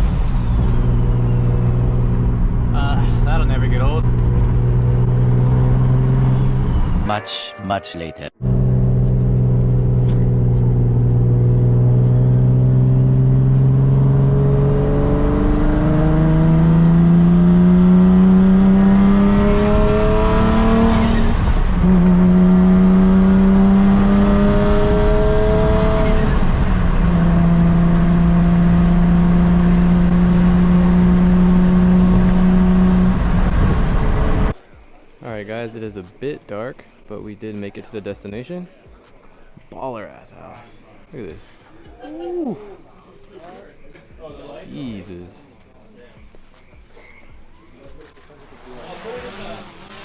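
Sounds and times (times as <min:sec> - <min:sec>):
car engine accelerating and shifting: 0:00.0 - 0:07.1, 0:08.4 - 0:34.6, 0:48.0 - 0:50.0.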